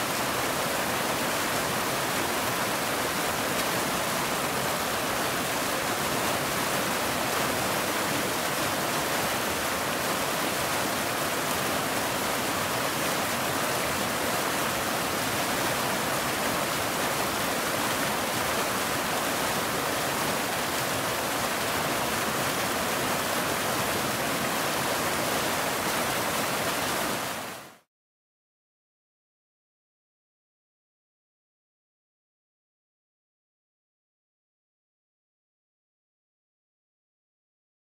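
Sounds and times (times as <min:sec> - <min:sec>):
waterfall rushing: 0:00.0 - 0:27.8.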